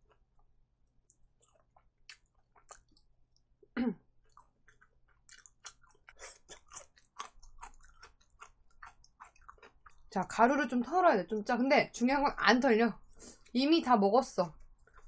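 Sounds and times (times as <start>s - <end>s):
chewing mouth clicks and smacks: 0.1s - 3.5s, 4.2s - 10.1s, 14.6s - 15.0s.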